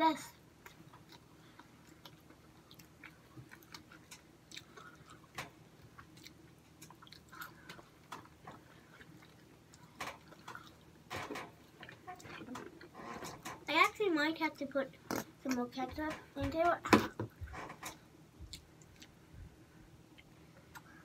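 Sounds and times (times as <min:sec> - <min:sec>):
chewing and eating: 0:00.6 - 0:10.9, 0:17.3 - 0:19.2.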